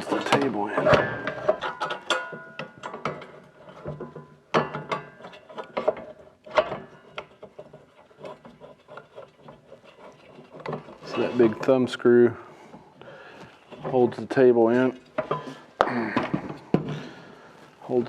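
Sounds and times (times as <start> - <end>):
metal clunks: 0.0 - 7.5
metal clicks and rattles: 0.0 - 11.8.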